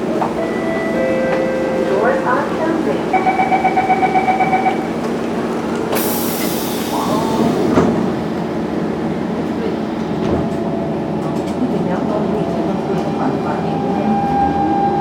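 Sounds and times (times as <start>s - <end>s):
train rumble: 0.0s - 15.0s
two-pitch warning tone: 3.1s - 5.0s.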